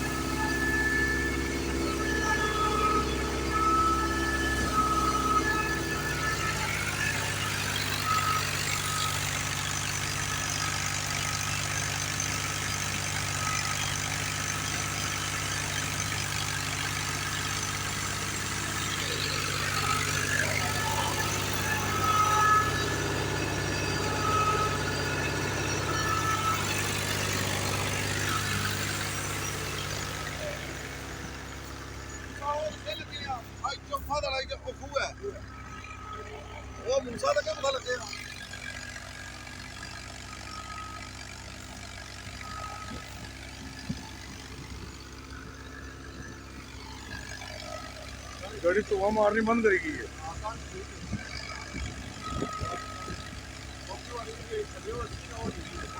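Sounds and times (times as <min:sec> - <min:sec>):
mechanical whirr and rattle: 0:00.0 - 0:33.1, 0:34.2 - 0:55.9
tractor engine running: 0:00.0 - 0:55.9.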